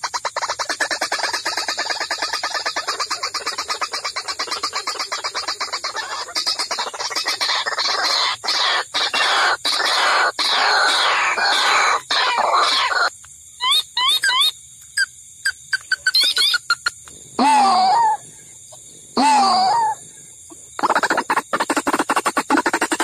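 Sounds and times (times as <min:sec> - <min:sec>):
waterhen calling: 0:00.0 - 0:14.5, 0:19.2 - 0:23.0.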